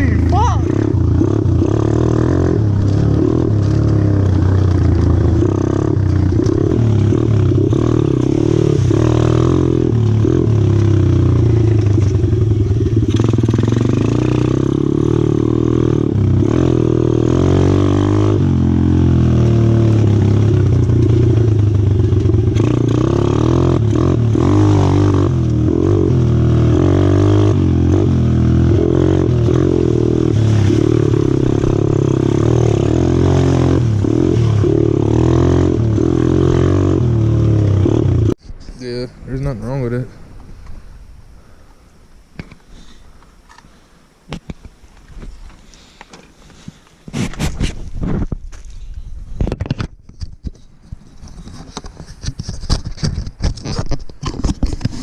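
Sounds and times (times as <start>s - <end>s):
pit bike engine revving: 0.0s - 38.4s.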